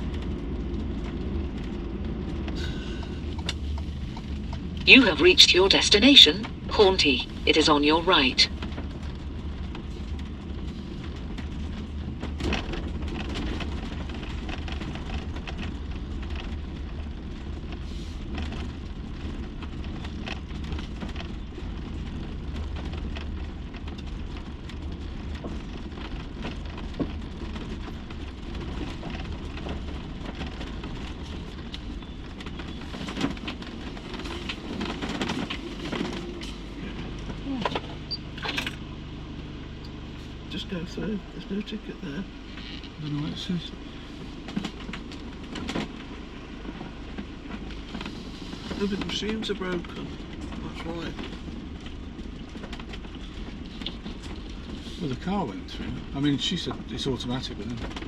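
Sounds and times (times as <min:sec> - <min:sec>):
engine and road rumble: 0:00.0 - 0:58.0
rattles and knocks: 0:08.5 - 0:38.9, 0:44.4 - 0:58.0.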